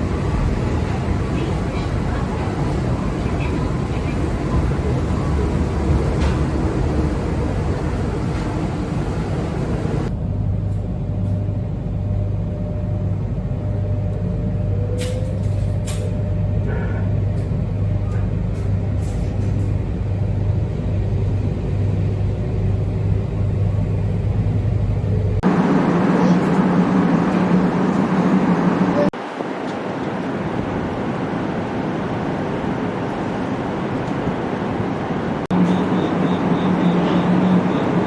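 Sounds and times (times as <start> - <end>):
vehicle engine hum: 0.0 - 10.2.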